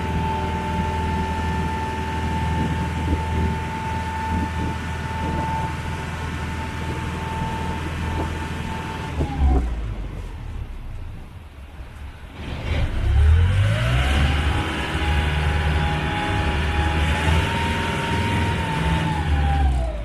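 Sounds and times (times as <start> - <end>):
ferry engine low hum: 0.0 - 20.0
high engine whine: 0.0 - 20.0.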